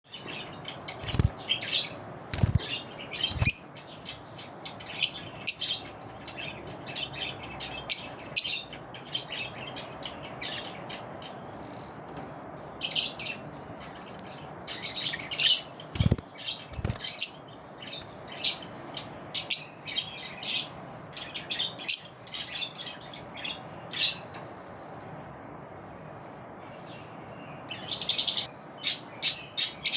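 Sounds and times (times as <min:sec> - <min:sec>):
lovebirds chirping and squeaking: 0:00.1 - 0:11.9, 0:12.8 - 0:18.7.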